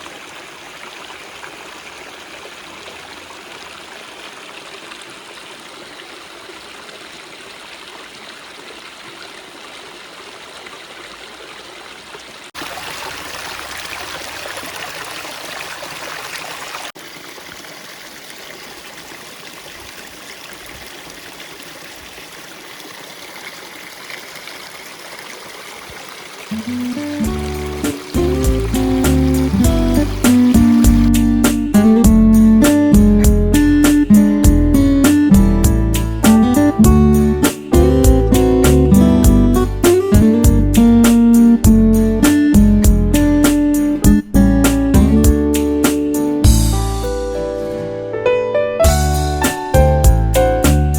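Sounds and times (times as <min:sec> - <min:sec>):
stream flowing: 0:00.0 - 0:32.0.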